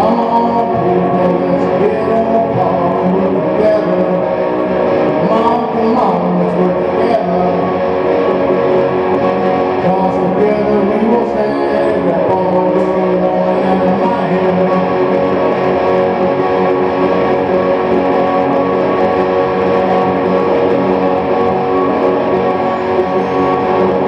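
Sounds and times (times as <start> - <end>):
guitar playing slowly: 0.0 - 24.0.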